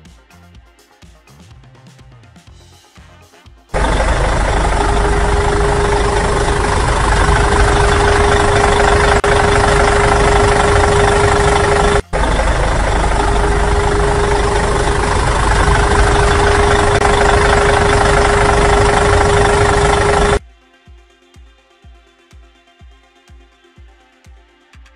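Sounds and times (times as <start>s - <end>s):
heavy machine engine idling: 3.8s - 20.4s.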